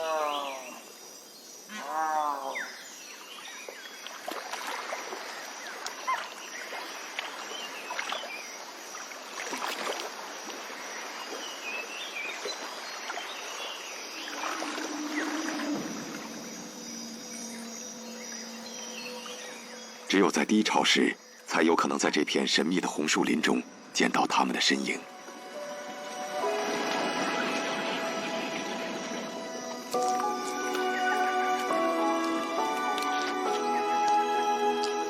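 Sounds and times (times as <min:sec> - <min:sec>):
natural background hiss: 0:00.0 - 0:35.0
wavering pitched call: 0:14.2 - 0:19.4, 0:25.5 - 0:35.0.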